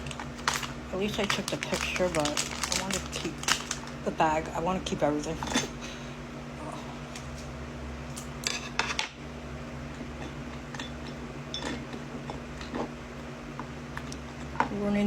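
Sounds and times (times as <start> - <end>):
packaging clicks and rustles: 0.0 - 4.0
steady low hum: 0.0 - 15.0.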